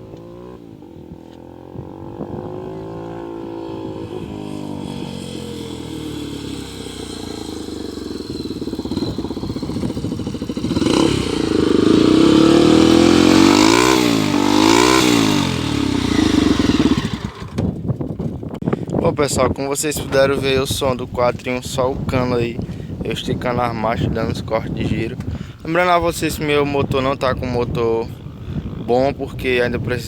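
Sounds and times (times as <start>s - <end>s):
motorcycle engine revving hard: 0.0s - 17.8s.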